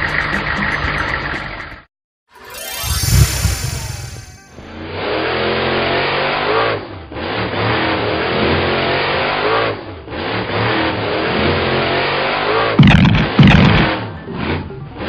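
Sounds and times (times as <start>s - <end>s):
cartoon engine revving: 2.4s - 5.4s, 12.8s - 14.0s.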